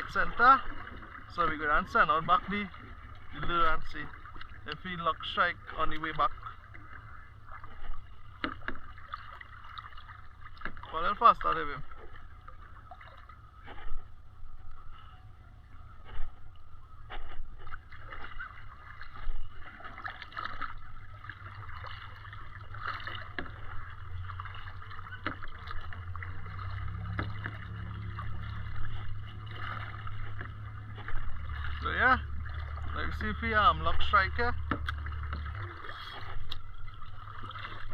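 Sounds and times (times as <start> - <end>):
paddle strokes splashing: 0.0 - 37.9
low rumble: 20.6 - 37.9.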